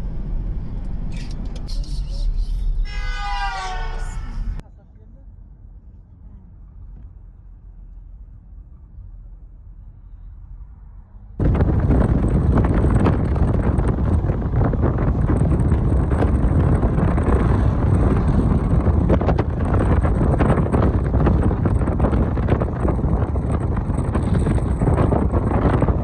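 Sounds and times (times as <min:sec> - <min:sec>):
wind buffeting microphone: 0:11.4 - 0:26.0.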